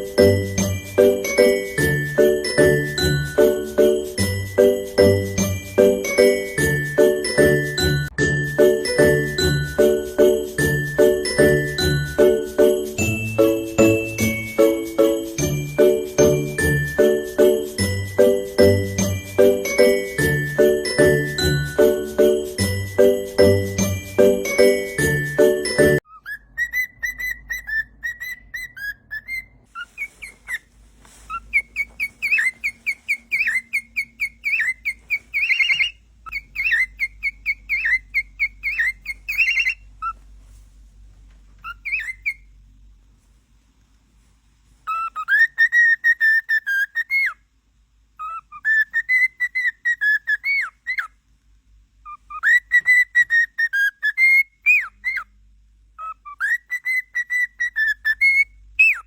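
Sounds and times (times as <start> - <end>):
cockatiel whistling: 0.0 - 40.2, 41.6 - 42.4, 44.9 - 47.4, 48.2 - 51.1, 52.1 - 55.3, 56.0 - 59.0.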